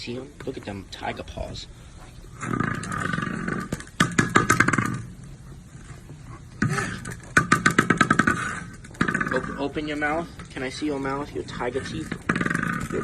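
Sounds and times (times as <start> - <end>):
animal growling: 2.0 - 13.0.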